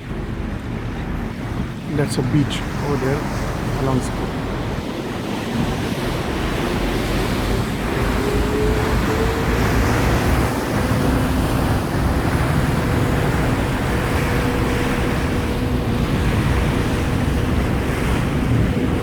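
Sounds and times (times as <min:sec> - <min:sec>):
ferry engines humming: 0:00.0 - 0:19.0
water rushing along hull: 0:00.0 - 0:19.0
wind buffeting microphone: 0:00.0 - 0:19.0.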